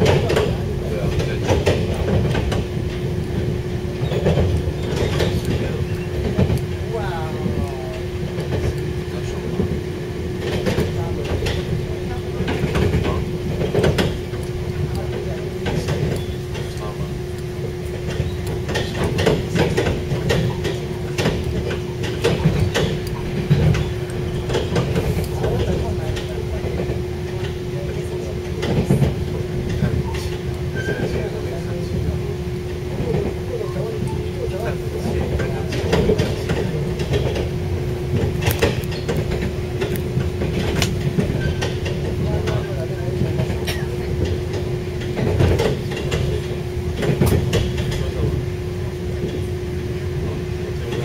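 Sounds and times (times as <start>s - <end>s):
constant hum: 0.0s - 51.0s
train running rumble: 0.0s - 51.0s
sharp clicks and rattles: 7.5s - 31.3s, 35.1s - 48.4s.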